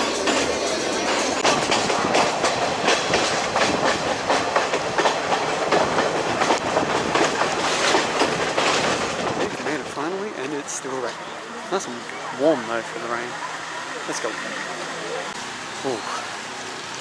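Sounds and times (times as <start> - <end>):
train wheels clacking over rail joints: 0.0 - 11.2
train rumbling rattle: 0.0 - 12.0.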